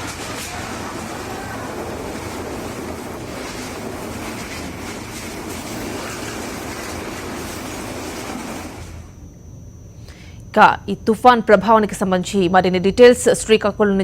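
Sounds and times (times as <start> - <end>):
sea waves surging on shore: 0.0 - 9.1.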